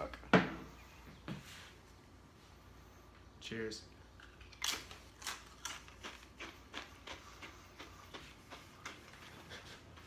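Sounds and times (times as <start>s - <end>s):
crunchy chewing of a chip: 4.2s - 9.8s.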